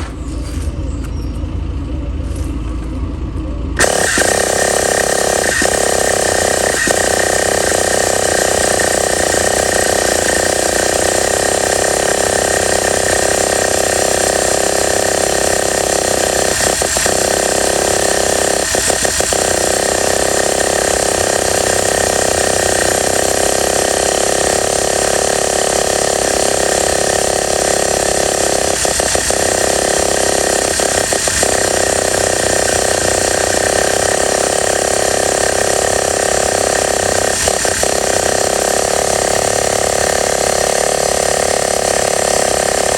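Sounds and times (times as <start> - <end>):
model engine running: 1.5 - 42.9.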